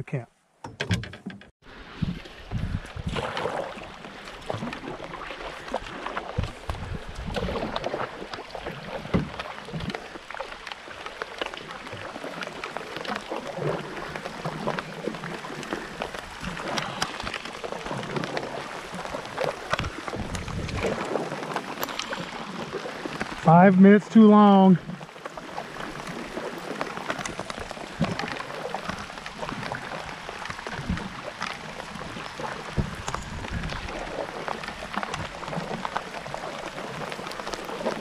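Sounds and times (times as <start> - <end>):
knocks on canoe: 0.6 - 1.5
paddle strokes splashing: 1.6 - 38.0
rain falling on water: 1.7 - 38.0.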